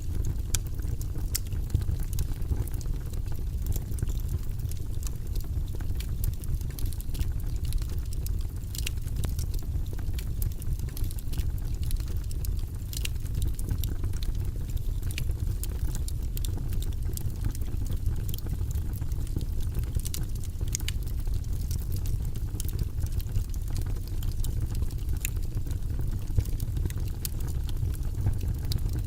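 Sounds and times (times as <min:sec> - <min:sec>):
fire crackling and popping: 0:00.0 - 0:29.0.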